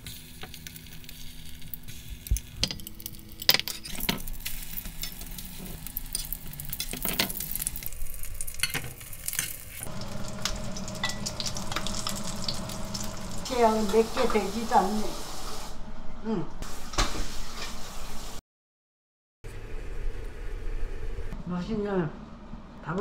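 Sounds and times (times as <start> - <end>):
oysters sizzling in oil: 0.0 - 15.8
metal utensils clicking on pan: 6.0 - 9.6, 10.4 - 12.7.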